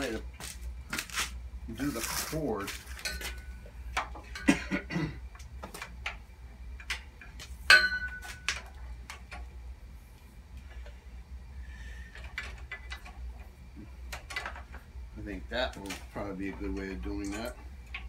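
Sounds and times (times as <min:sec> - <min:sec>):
ringing metal clank: 0:07.7 - 0:08.3.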